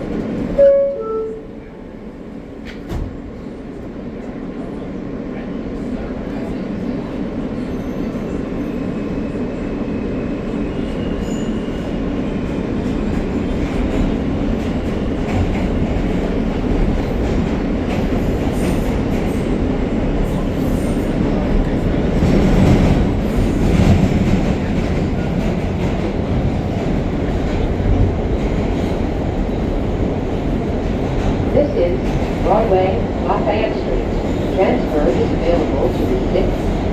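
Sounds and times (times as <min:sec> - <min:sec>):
train wheels rumbling on rails: 0:02.1 - 0:36.9
train clatter: 0:11.7 - 0:36.9.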